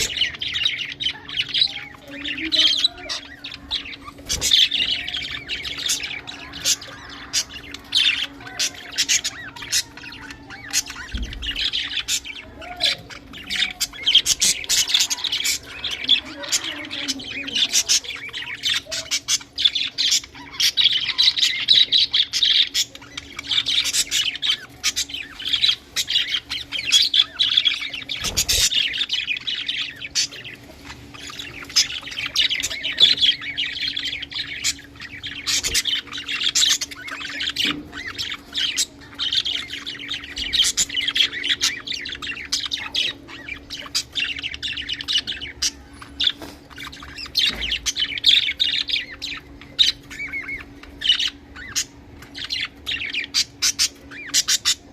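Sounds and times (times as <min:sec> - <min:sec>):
budgerigars chattering and warbling: 0:00.0 - 0:54.9.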